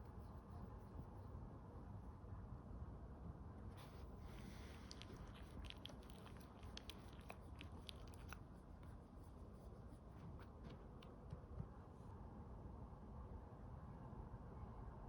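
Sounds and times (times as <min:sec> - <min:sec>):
dog chewing: 0:04.2 - 0:08.6.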